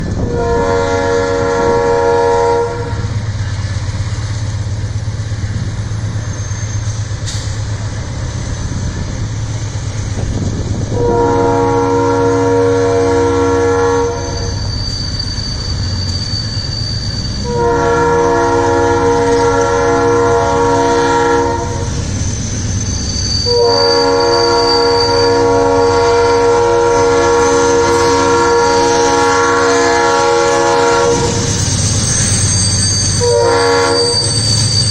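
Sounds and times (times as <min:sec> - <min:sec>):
diesel engines rumbling: 0:00.0 - 0:34.9
locomotive horn chord: 0:00.2 - 0:03.2, 0:10.9 - 0:14.6, 0:17.4 - 0:22.0, 0:23.4 - 0:31.5, 0:33.2 - 0:34.2.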